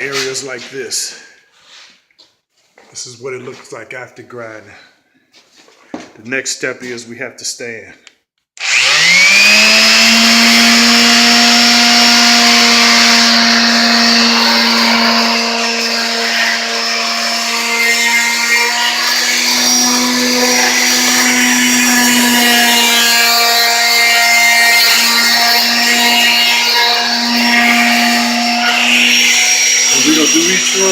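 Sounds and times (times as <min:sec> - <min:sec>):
electric sander motor whine: 0:08.6 - 0:30.9.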